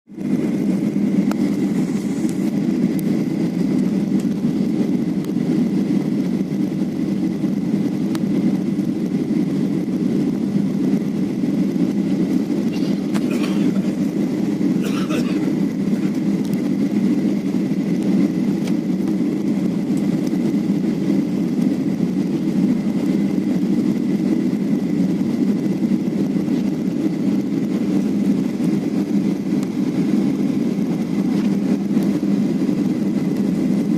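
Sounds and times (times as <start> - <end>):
airliner engine and airflow rumble: 0.0 - 33.9.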